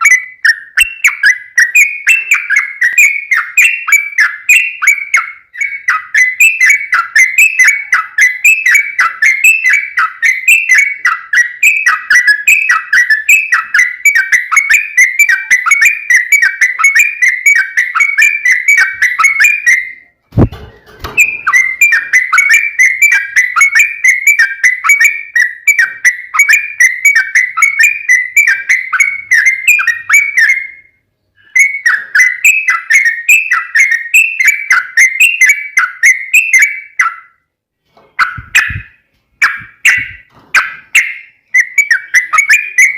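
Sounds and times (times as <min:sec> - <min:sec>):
bulbul singing: 0:00.0 - 0:37.4, 0:38.1 - 0:42.9
thump: 0:20.3 - 0:21.4.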